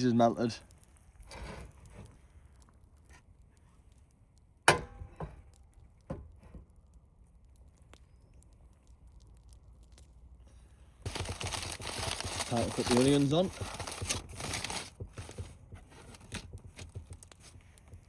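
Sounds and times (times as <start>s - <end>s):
rustling: 7.3s - 18.0s.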